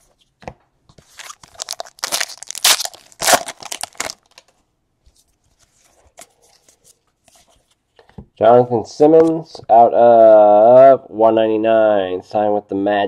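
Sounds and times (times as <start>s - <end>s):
wrapper tearing and crinkling: 1.1s - 4.5s.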